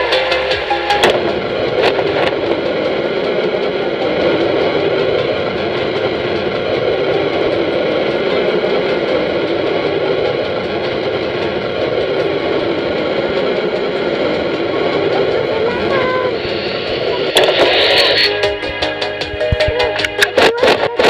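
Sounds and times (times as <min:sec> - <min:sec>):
airplane engine drone: 0:00.0 - 0:21.0.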